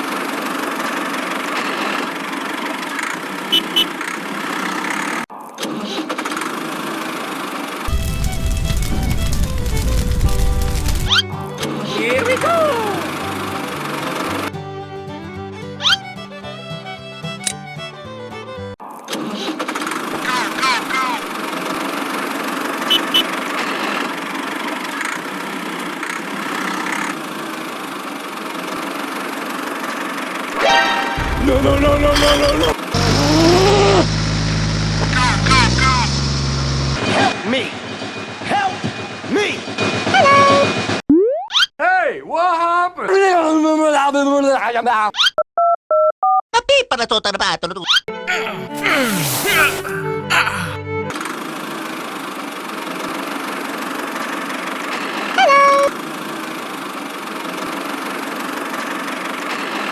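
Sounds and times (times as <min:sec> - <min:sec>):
short high chirps: 0:03.6 - 0:03.9, 0:22.9 - 0:23.3, 0:32.1 - 0:32.8, 0:48.7 - 0:50.1
engine idling: 0:31.2 - 0:37.0
small motor running: 0:31.2 - 0:37.0.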